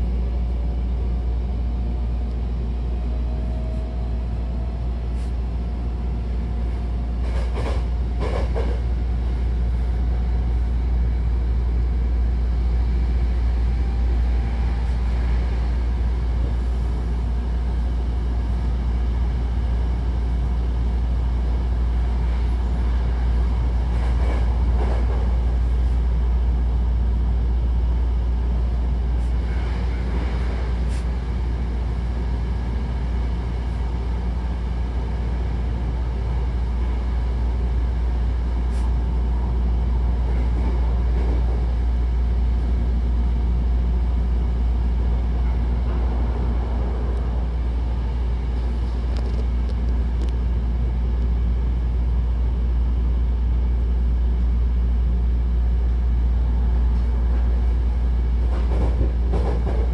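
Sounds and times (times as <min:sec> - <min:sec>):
train interior rumble: 0:00.0 - 0:59.9.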